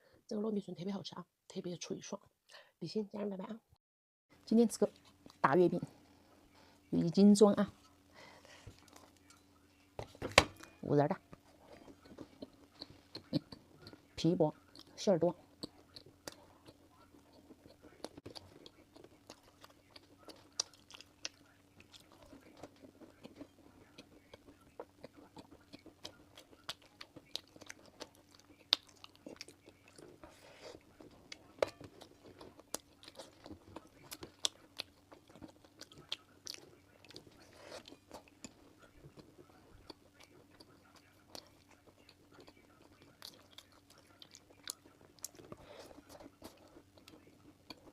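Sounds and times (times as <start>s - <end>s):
faint steady hum: 0.0s - 47.9s
biting and chewing crunches: 11.5s - 47.9s.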